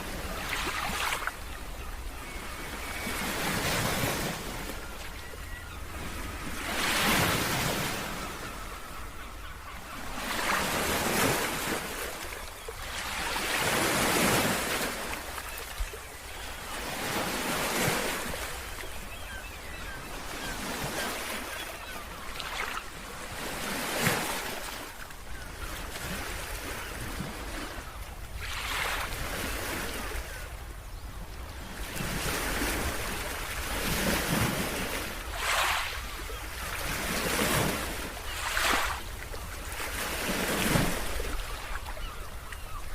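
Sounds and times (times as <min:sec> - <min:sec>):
ocean waves breaking on beach: 0:09.9 - 0:30.6, 0:31.7 - 0:42.9.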